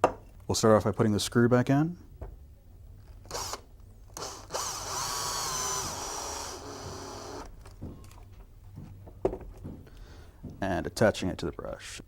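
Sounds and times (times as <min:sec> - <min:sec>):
power screwdriver motor whining: 0:03.3 - 0:03.6, 0:04.2 - 0:07.5.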